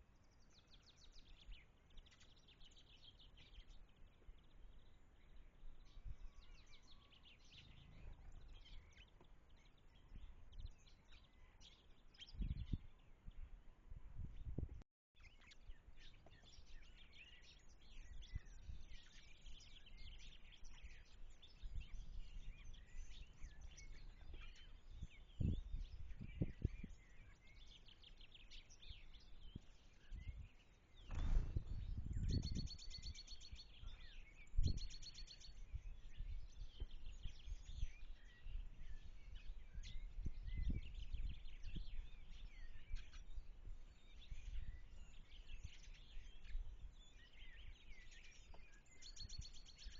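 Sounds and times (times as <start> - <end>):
small birds chirping and singing: 0.0 - 49.9
low rumbling noise: 31.1 - 32.8.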